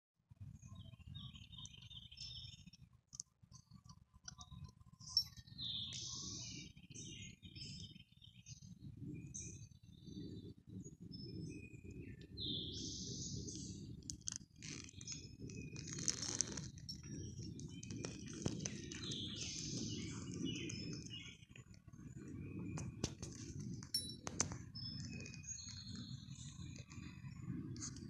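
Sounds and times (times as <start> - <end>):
buzzy bird calls: 14.5 - 21.6.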